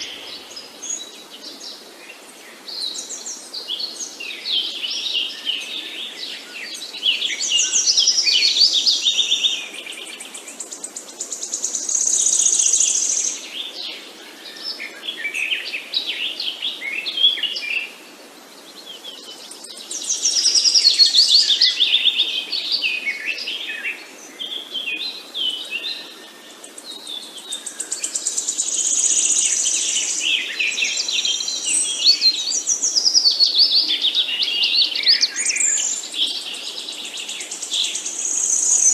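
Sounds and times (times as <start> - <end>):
faint outdoor background: 0.0 - 38.9
songbirds chirping and singing: 0.0 - 38.9.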